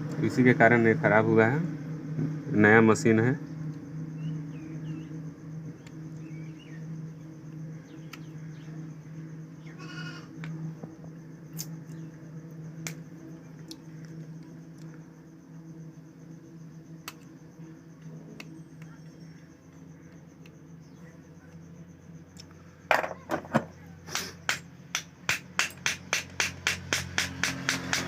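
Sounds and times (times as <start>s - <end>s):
low hum: 0.0s - 24.0s
goat or sheep bleat: 9.8s - 10.3s.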